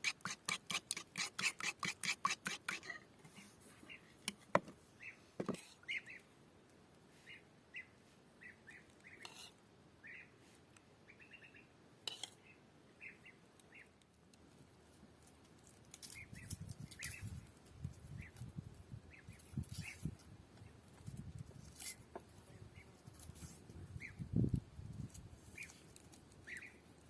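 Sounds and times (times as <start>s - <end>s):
small birds chirping: 3.7s - 4.2s, 5.0s - 6.4s, 7.2s - 10.4s, 11.0s - 11.8s, 12.4s - 14.0s, 16.0s - 20.8s, 22.4s - 23.1s, 23.9s - 24.5s, 25.4s - 27.0s.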